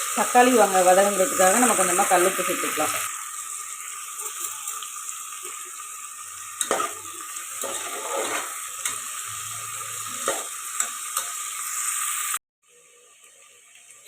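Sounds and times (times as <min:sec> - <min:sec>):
onions sizzling in hot oil: 0:00.0 - 0:14.0
spoon scraping and knocking pot: 0:07.6 - 0:09.0.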